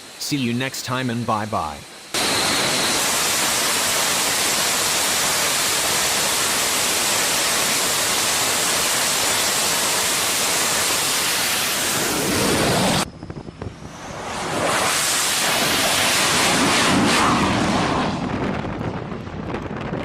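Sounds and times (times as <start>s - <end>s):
loud rushing noise: 13.8s - 18.5s.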